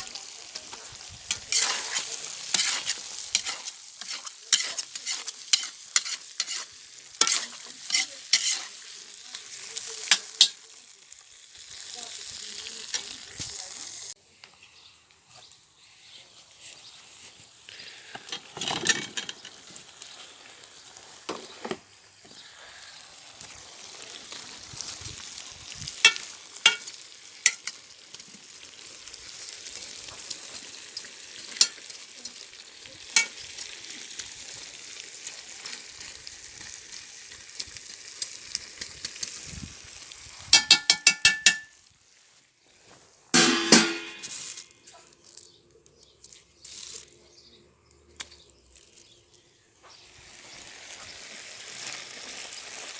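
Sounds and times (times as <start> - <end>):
food sizzling in a pot: 0.0 - 45.6, 48.2 - 52.9
utensil clinking against pot: 26.1 - 26.9, 40.6 - 41.7, 43.4 - 44.4
ringing metallic taps: 40.6 - 41.7, 43.4 - 44.3.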